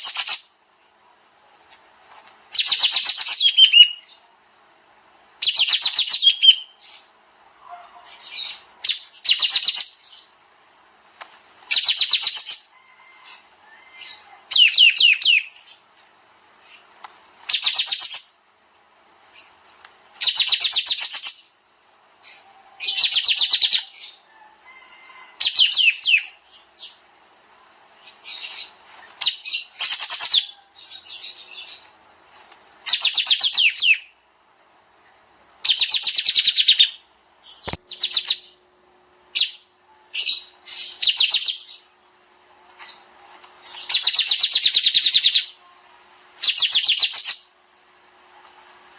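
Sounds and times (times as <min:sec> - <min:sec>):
softer bird calls: 0:00.0 - 0:04.3, 0:05.4 - 0:10.4, 0:11.7 - 0:15.9, 0:16.6 - 0:18.4, 0:22.2 - 0:24.5, 0:39.3 - 0:42.0, 0:42.8 - 0:45.8, 0:46.4 - 0:47.6
bulbul singing rapid bursts: 0:17.4 - 0:18.4.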